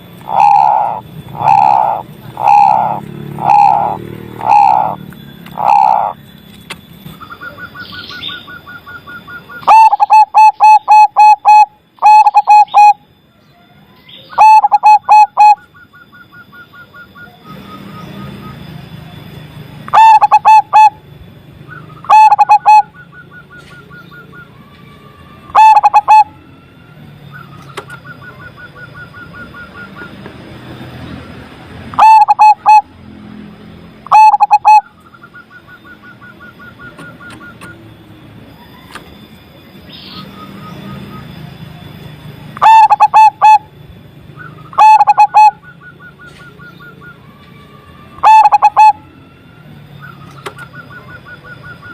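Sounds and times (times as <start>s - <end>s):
higher pulsed trills: 0.0s - 13.3s, 14.0s - 47.3s, 47.9s - 51.9s
dove cooing: 0.1s - 6.2s, 7.3s - 13.0s, 14.4s - 15.7s, 19.9s - 21.1s, 21.7s - 24.3s, 25.5s - 26.4s, 31.9s - 33.0s, 34.0s - 37.8s, 42.6s - 43.7s, 44.4s - 47.2s, 48.2s - 49.2s.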